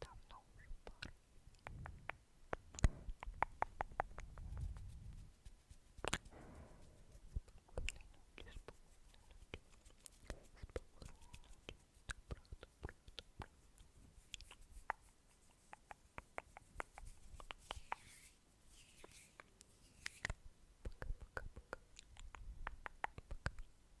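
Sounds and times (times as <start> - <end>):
wet lip and tongue clicks: 0.2 - 4.4, 20.0 - 23.7.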